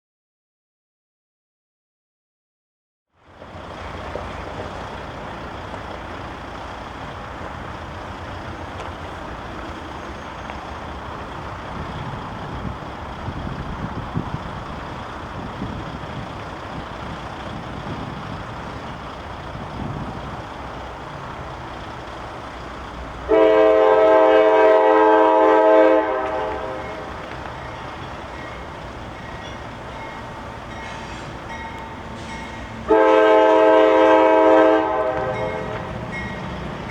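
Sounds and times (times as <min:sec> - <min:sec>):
train rumbling along track: 0:03.2 - 0:36.9
locomotive air horn blast: 0:23.3 - 0:27.1, 0:32.9 - 0:36.0.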